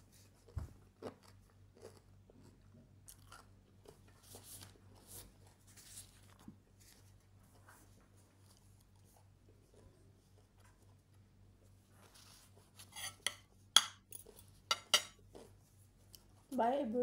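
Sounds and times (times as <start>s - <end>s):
chewing crunches and mouth noises: 0.4s - 5.5s.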